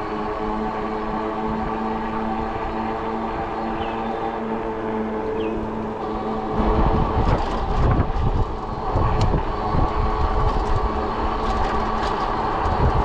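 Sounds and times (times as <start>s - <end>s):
electric motor hum: 0.0s - 13.0s
tire noise: 0.0s - 13.0s
wind rumble on microphone: 0.0s - 13.0s.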